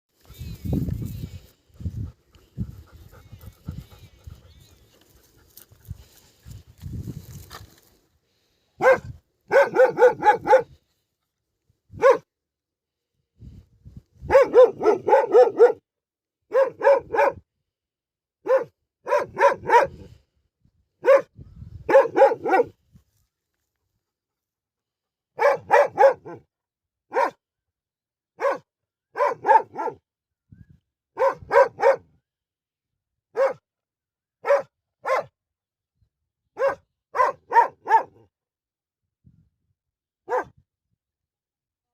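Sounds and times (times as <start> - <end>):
dog barking loudly: 8.8 - 10.7, 12.0 - 12.3, 14.2 - 15.8, 16.5 - 17.4, 18.4 - 20.0, 21.0 - 21.3, 21.9 - 22.8, 25.4 - 26.5, 27.1 - 27.4, 28.4 - 30.0, 31.2 - 32.1, 33.4 - 33.6, 34.4 - 35.3, 36.6 - 38.2, 40.3 - 40.5.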